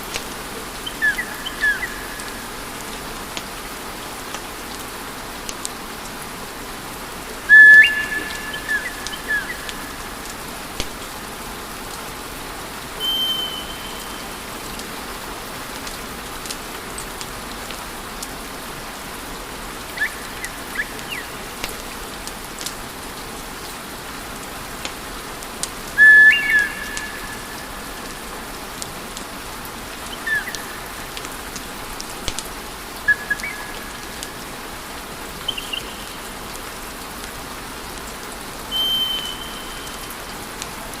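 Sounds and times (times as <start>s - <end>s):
high whistling tones: 7.5s - 9.7s, 13.0s - 14.4s, 26.0s - 27.6s, 38.7s - 40.1s.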